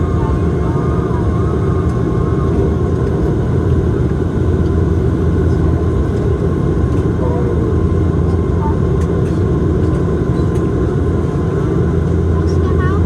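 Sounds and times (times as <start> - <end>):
turboprop engines running: 0.0 - 13.0.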